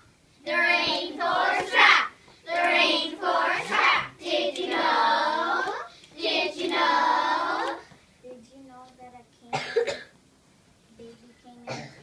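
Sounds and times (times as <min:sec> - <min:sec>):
children singing: 0:00.5 - 0:07.9.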